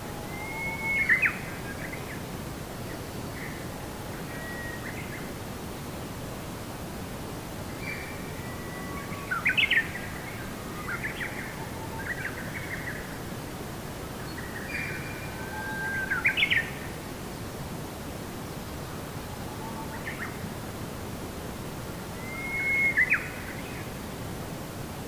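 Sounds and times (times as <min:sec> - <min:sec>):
background hiss: 0:00.0 - 0:25.0
bird whistling song: 0:00.3 - 0:01.8, 0:22.2 - 0:23.6.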